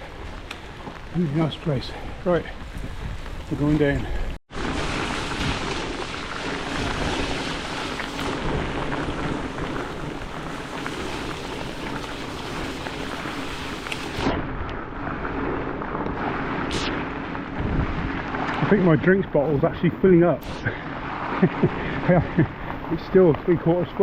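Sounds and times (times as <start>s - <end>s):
wind rumble on microphone: 0.0s - 24.0s
heavy rain: 3.8s - 19.4s, 20.5s - 23.1s.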